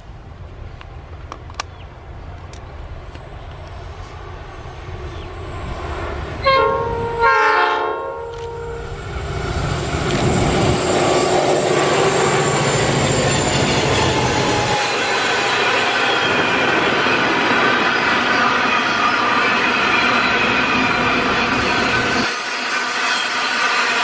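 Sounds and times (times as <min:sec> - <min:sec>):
diesel locomotive engine: 0:00.0 - 0:24.0
train wheels on rails: 0:00.0 - 0:24.0
train horn blasts: 0:06.3 - 0:09.0.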